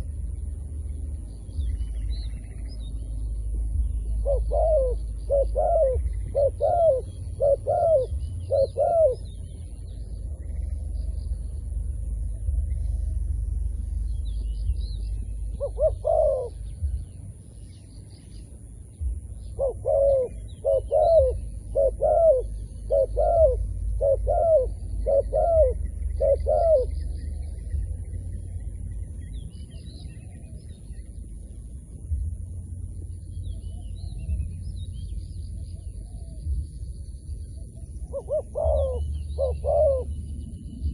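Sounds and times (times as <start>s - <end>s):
low rumble: 0.0s - 40.9s
small birds chirping: 0.0s - 40.9s
dove cooing: 3.8s - 9.5s, 15.6s - 17.0s, 19.4s - 28.0s, 37.5s - 40.9s.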